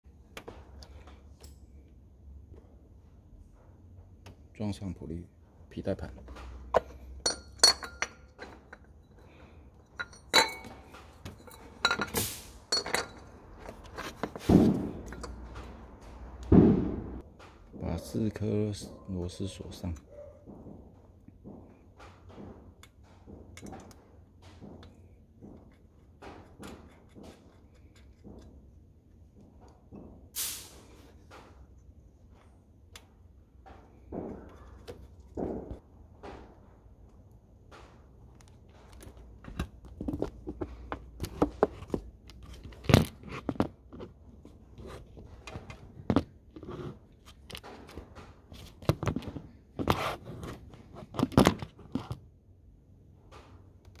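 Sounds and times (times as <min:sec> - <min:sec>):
metal tools clinking and tapping: 0:00.8 - 0:02.0, 0:06.3 - 0:14.4, 0:15.0 - 0:15.9, 0:22.7 - 0:28.7
short loud hiss-like burst: 0:12.2 - 0:12.6, 0:30.4 - 0:30.9.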